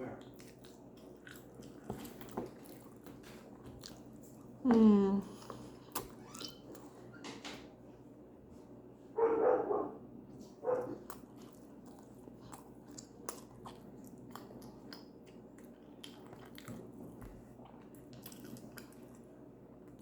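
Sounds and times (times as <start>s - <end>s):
dog barking: 9.2s - 10.0s, 10.6s - 11.0s.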